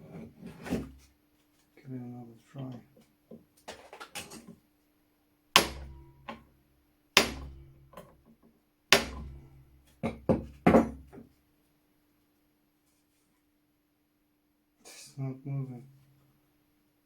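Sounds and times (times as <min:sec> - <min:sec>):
hammer striking metal punch: 0:05.6 - 0:06.4, 0:07.2 - 0:08.1, 0:09.0 - 0:10.9.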